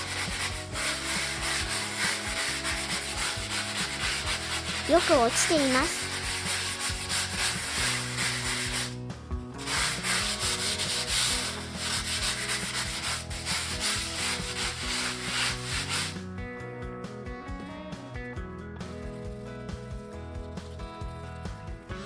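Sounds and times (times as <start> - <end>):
sponge scrubbing floor: 0.0 - 16.2.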